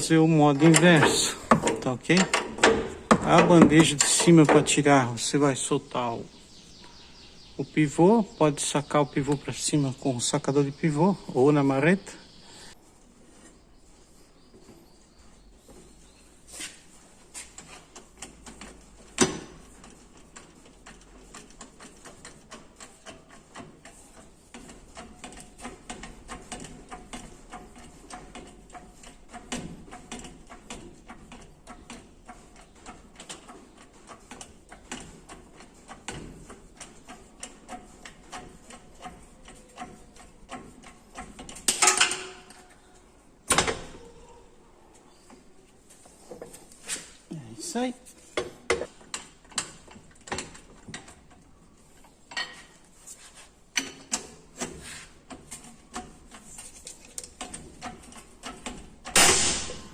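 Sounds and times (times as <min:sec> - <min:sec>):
loud metal clanks: 0:59.1 - 0:59.9.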